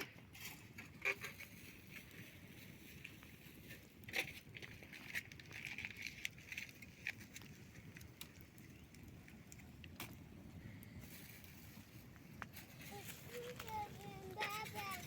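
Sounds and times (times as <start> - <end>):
sharp clicks and crackles: 3.8 - 15.0.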